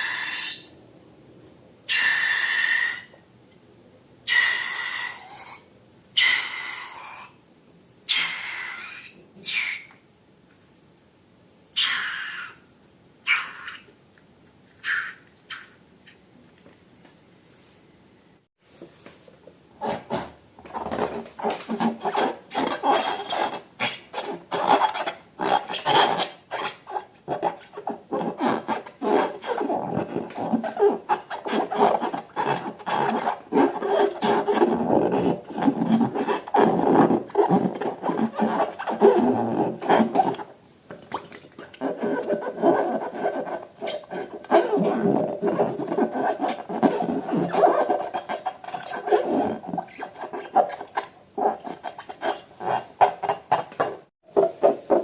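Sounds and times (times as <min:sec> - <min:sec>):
hand rubbing and scraping slime: 0:19.8 - 0:40.6, 0:41.2 - 0:55.0.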